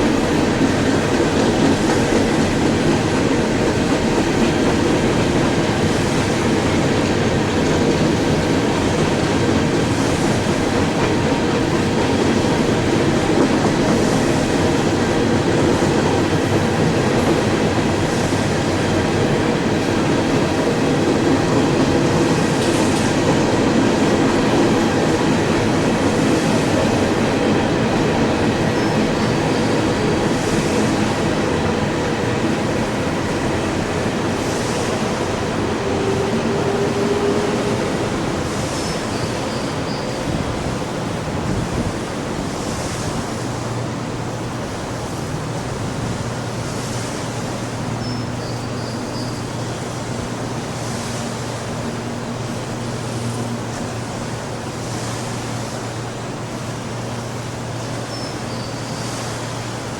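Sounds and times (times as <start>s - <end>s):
steel wheels on rails: 0.0s - 43.8s.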